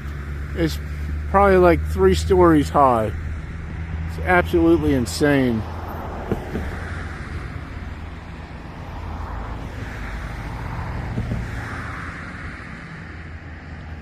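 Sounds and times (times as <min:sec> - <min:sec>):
cars passing: 0:00.0 - 0:14.0
road traffic hum: 0:00.0 - 0:14.0.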